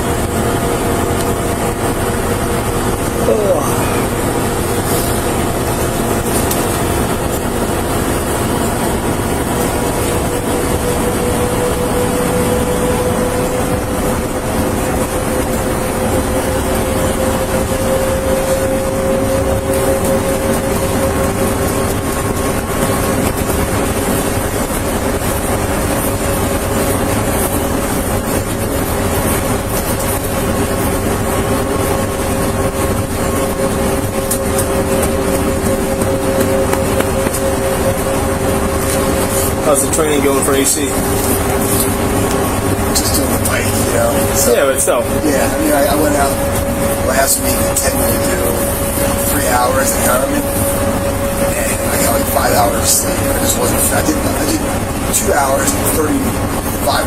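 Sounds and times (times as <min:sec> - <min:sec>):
car engine: 0:00.0 - 0:57.0
faint hum rising in pitch: 0:00.0 - 0:57.0
road noise: 0:00.0 - 0:57.0.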